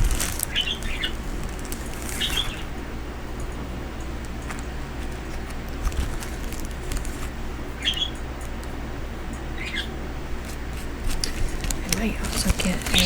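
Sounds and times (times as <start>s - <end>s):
bird chirping: 0.0s - 2.7s, 7.7s - 8.3s, 9.5s - 10.0s
low room hum: 0.0s - 13.0s.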